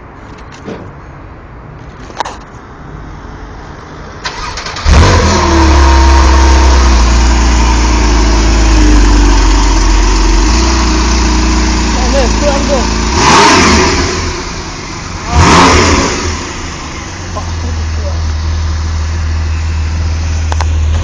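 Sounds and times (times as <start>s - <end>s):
car engine cranking: 4.2s - 7.3s
car engine idling: 4.2s - 21.0s.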